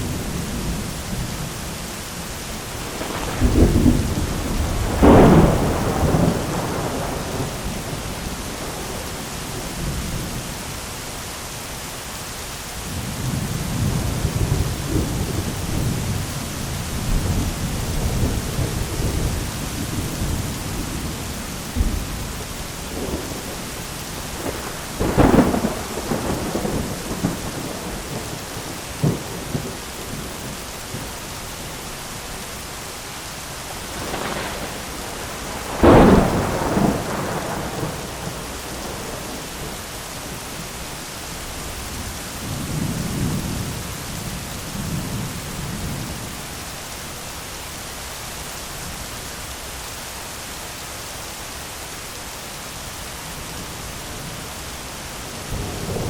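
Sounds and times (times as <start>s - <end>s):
thunder rumbling: 0.0s - 10.6s, 12.9s - 32.4s, 33.5s - 46.7s, 53.6s - 56.0s
heavy rain on an umbrella: 0.0s - 56.0s
thunder cracks: 2.9s - 9.2s, 16.9s - 30.3s, 33.7s - 39.8s.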